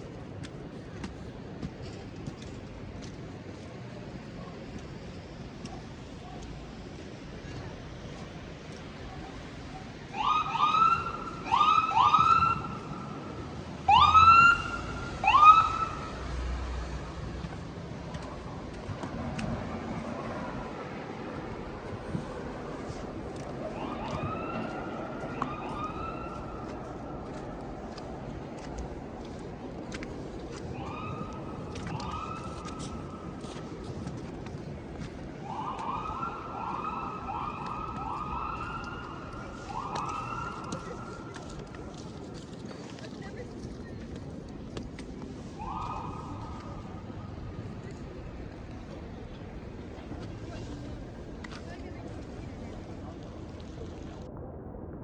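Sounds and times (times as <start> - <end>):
low street noise: 0.0 - 55.0
emergency vehicle siren whoops: 10.1 - 13.3, 13.9 - 16.4, 23.6 - 26.9, 30.7 - 33.4, 35.4 - 41.4, 45.6 - 47.2.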